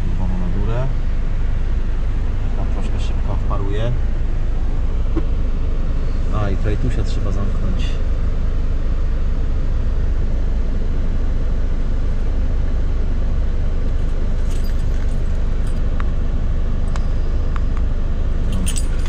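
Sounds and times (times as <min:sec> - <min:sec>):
car engine idling: 0:00.0 - 0:19.0
light clicks and clinks: 0:14.0 - 0:15.8, 0:18.5 - 0:19.0.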